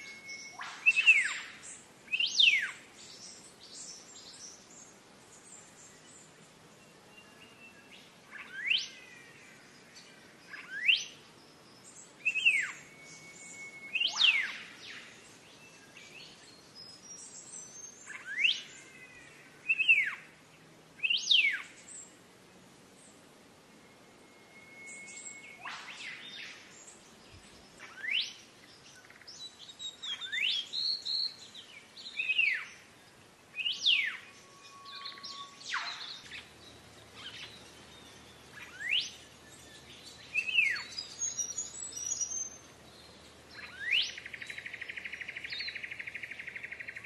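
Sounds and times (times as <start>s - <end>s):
bird whistling notes: 0.0s - 2.8s, 12.2s - 15.1s, 23.8s - 26.8s, 33.6s - 36.5s, 38.6s - 39.2s.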